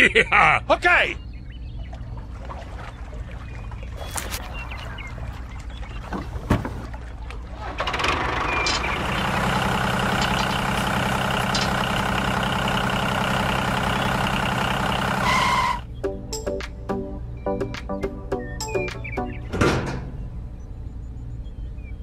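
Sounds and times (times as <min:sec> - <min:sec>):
truck engine running: 0:07.7 - 0:16.0.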